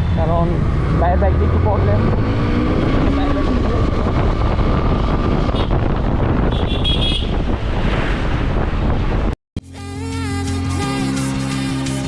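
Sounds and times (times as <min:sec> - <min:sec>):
motorcycle engine: 0:00.0 - 0:07.7
wind buffeting microphone: 0:00.5 - 0:09.4.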